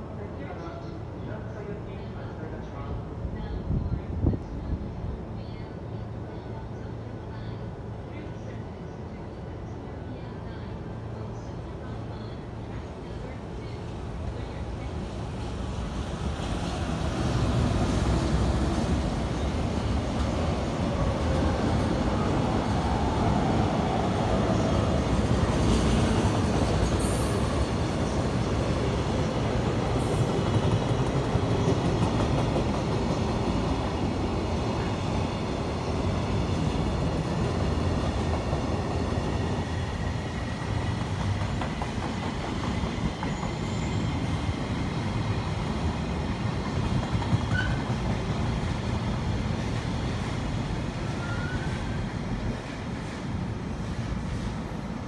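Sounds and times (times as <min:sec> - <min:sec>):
electric locomotive passing: 0:10.6 - 0:55.0.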